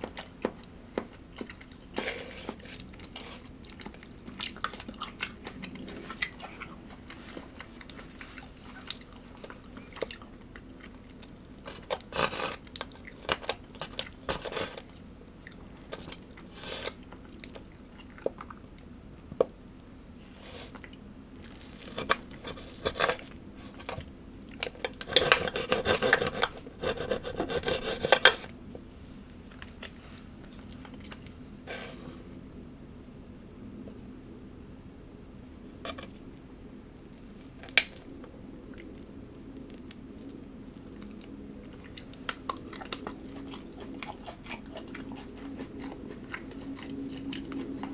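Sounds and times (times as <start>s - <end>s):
person chewing and crunching: 0.0s - 19.3s, 37.1s - 47.9s.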